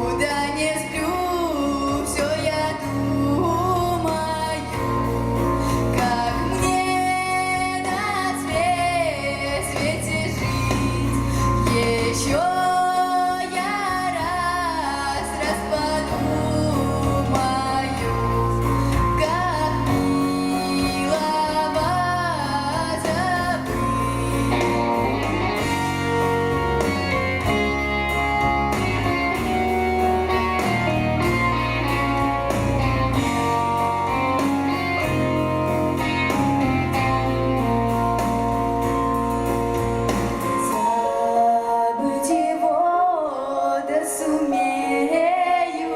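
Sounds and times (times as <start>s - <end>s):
woman singing with vibrato: 0.0s - 27.7s, 40.4s - 45.9s
instrumental backing with bass line: 0.0s - 45.9s.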